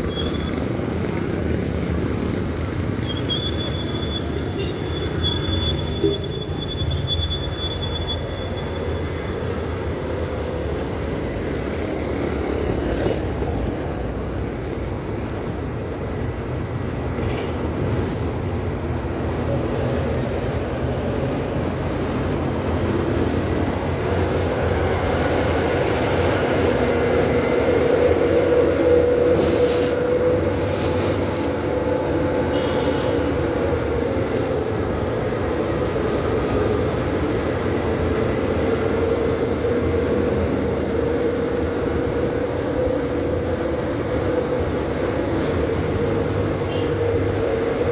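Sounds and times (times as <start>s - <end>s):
bicycle road and wind noise: 0.0s - 47.9s.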